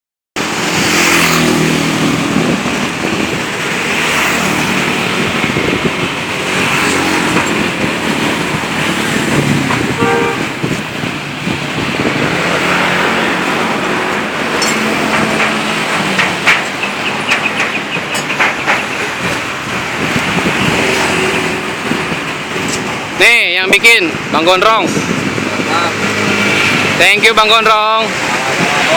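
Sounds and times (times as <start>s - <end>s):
scooter engine revving: 0.4s - 18.0s.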